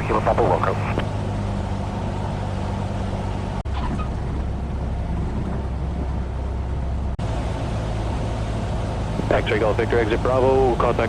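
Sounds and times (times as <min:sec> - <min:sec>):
aircraft engine droning in cabin: 0:00.0 - 0:03.4, 0:07.2 - 0:11.0.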